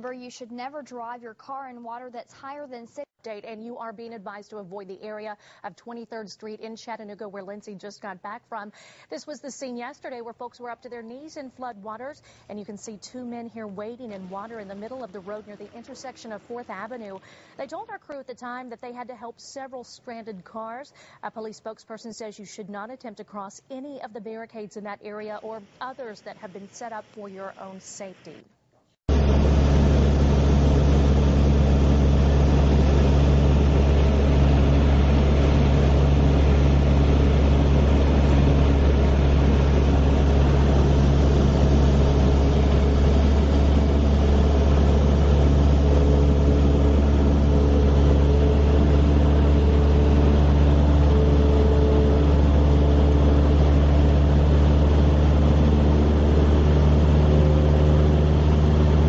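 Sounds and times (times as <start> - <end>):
helicopter engine and rotor drone: 29.1 - 59.0.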